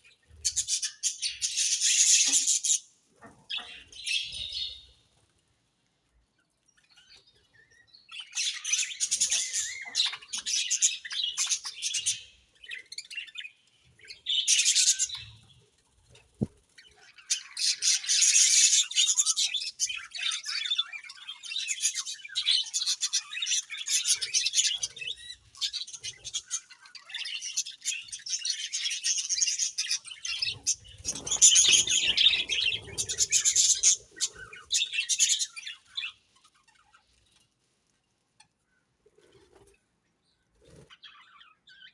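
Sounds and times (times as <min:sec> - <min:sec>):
budgerigars chattering and chirping: 0:00.3 - 0:02.8, 0:16.8 - 0:37.1.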